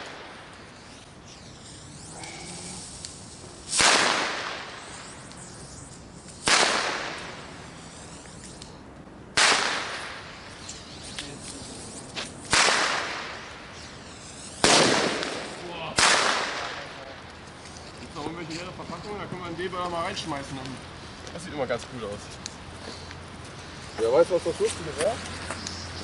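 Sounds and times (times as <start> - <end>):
firework bangs echoing: 3.7 - 5.0, 6.4 - 7.5, 9.3 - 10.5, 12.4 - 17.1.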